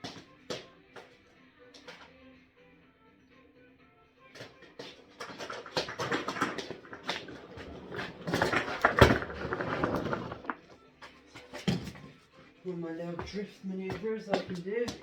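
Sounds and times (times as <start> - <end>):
wheels rolling on floor: 0.0 - 2.2, 4.2 - 15.0
vacuum cleaner knocks and rattles: 4.4 - 10.6.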